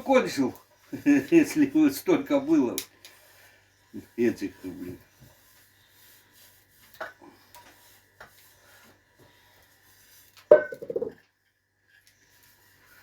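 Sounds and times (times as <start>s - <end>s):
hard object knocking down: 10.5s - 11.2s.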